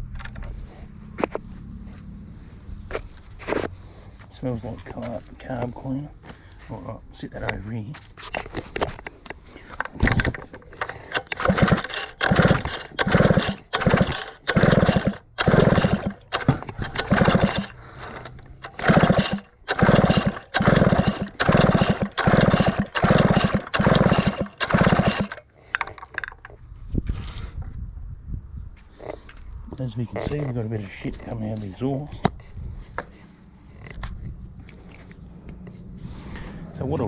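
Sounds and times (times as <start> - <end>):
chainsaw recoil starter pulls: 9.7 - 26.6.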